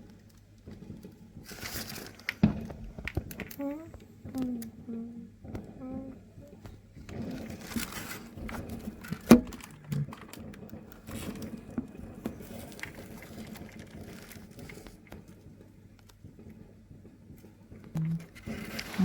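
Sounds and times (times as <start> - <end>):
fireworks popping and crackling: 0.0 - 19.0.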